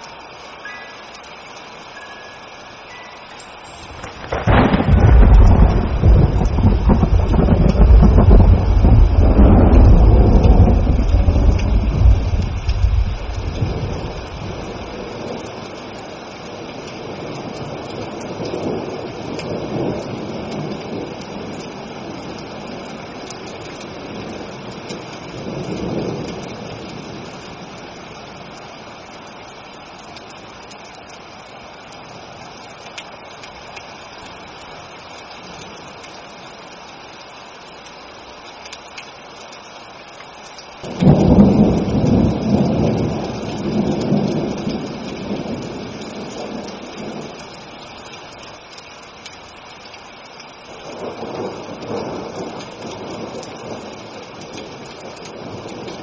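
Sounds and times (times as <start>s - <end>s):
steady rain: 0.0s - 56.0s
rolling thunder: 3.9s - 15.4s, 40.8s - 47.4s
loud crack of thunder: 4.0s - 15.0s, 40.9s - 45.8s.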